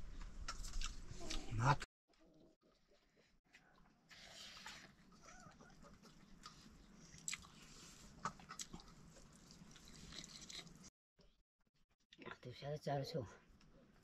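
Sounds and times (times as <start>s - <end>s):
person chewing food: 0.1s - 1.5s, 2.9s - 10.9s.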